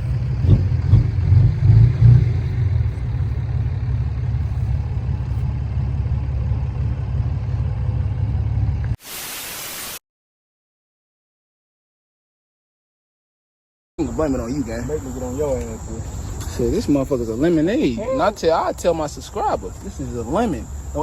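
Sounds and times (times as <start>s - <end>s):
dirt bike engine idling: 0.0s - 8.9s
hiss: 9.0s - 10.0s.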